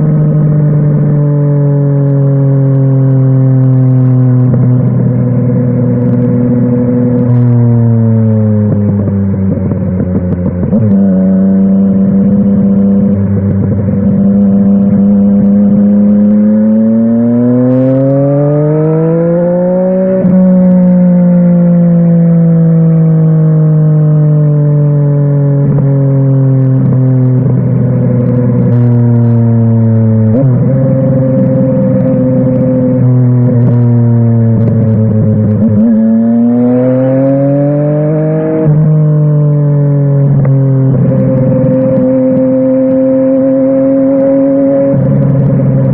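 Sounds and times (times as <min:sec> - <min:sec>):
motorcycle engine revving: 0:00.0 - 0:45.9
gear change: 0:25.4 - 0:45.9.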